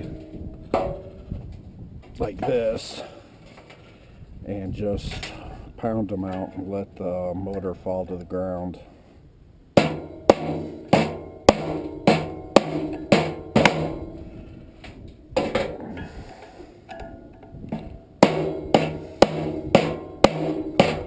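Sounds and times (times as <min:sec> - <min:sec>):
hammer blows on metal: 0:09.8 - 0:14.6, 0:15.3 - 0:21.0.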